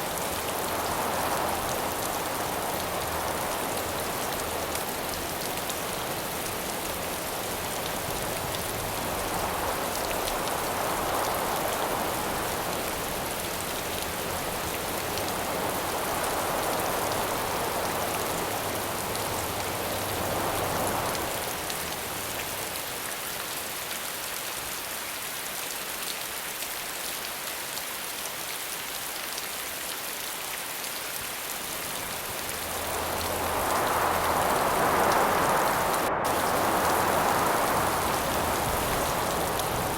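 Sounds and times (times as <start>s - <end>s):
wind gusts: 0.0s - 23.2s, 31.1s - 39.9s
steady rain hiss: 0.0s - 39.9s.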